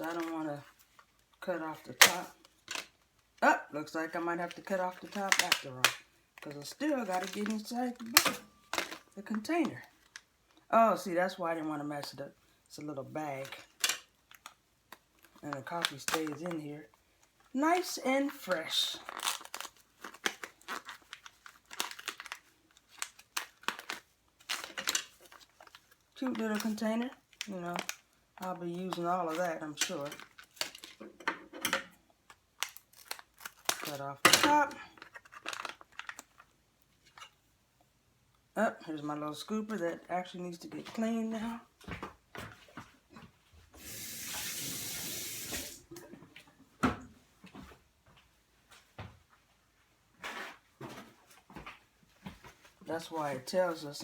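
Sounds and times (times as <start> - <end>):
coffee bag crinkling: 4.1 - 10.6, 13.0 - 31.0, 32.5 - 36.5, 43.8 - 45.8
kitchen tap running: 43.8 - 46.0.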